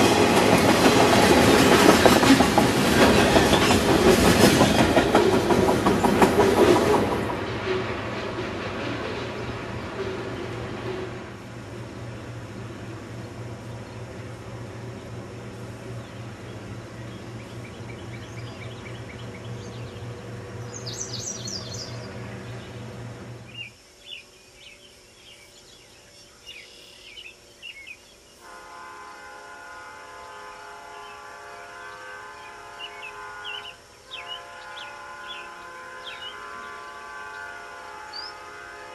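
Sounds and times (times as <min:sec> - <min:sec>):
birds chirping: 0:12.0 - 0:28.4, 0:30.2 - 0:38.8
locomotive air horn: 0:28.4 - 0:38.9.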